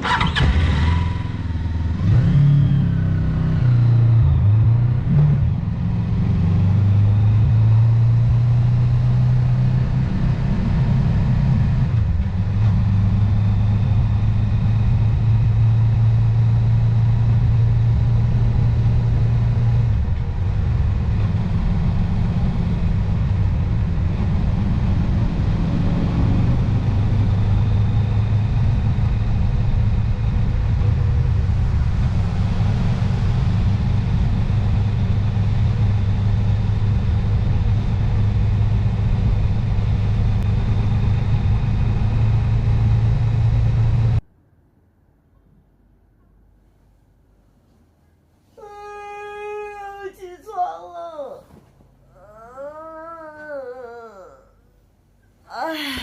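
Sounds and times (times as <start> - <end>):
motorcycle engine revving: 0.0 - 44.2.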